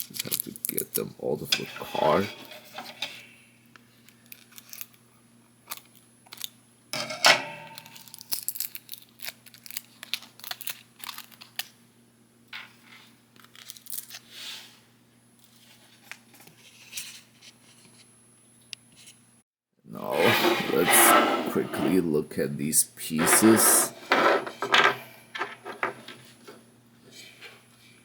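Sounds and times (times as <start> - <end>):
cardboard packaging tearing: 8.0 - 11.7.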